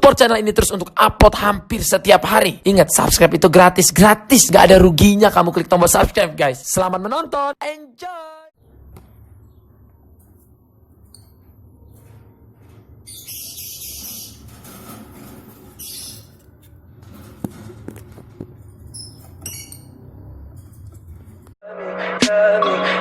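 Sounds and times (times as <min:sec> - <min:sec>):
bird chicks chirping: 0:13.0 - 0:16.6.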